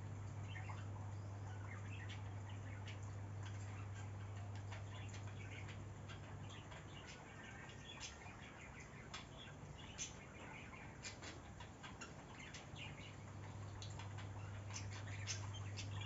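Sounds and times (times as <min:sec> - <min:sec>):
bird chirps and ticks: 0:00.0 - 0:16.0
faint low hum: 0:00.0 - 0:16.0.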